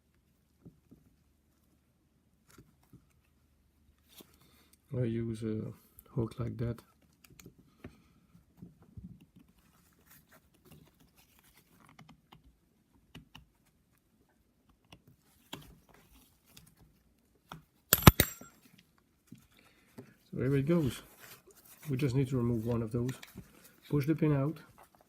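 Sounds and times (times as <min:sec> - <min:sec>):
metal pick scratching and clicking: 0:17.9 - 0:18.5
sharp metallic snaps: 0:17.9 - 0:18.5.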